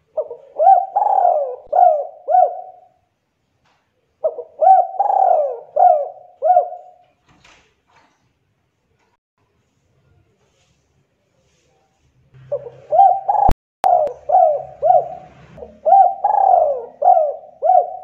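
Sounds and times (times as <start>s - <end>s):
dove cooing: 0.0s - 3.0s, 4.2s - 7.0s, 12.4s - 18.0s.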